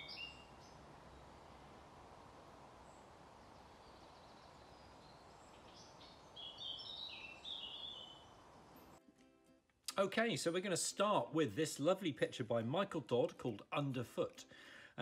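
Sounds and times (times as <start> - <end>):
bird chirping: 0.0 - 1.8, 2.8 - 9.0
soft steady hiss: 0.0 - 15.0.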